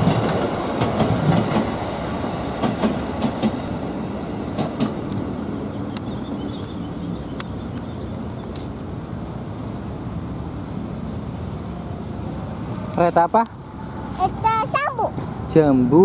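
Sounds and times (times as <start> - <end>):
train wheels clacking on rail joints: 0.0 - 3.9, 4.5 - 5.3.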